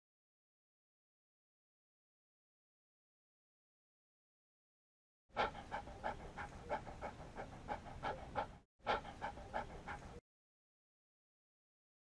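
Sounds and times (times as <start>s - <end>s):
dog panting: 5.4s - 10.2s.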